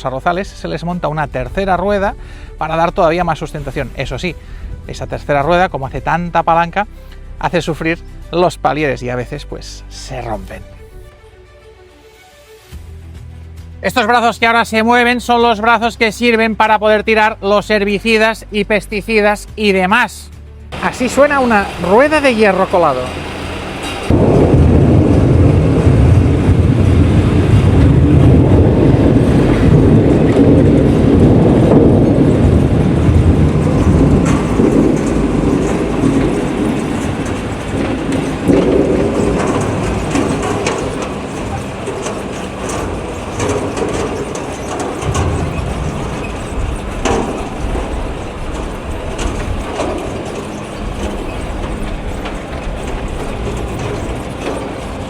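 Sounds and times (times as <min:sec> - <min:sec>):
tractor wheels clattering: 0:20.7 - 0:55.0.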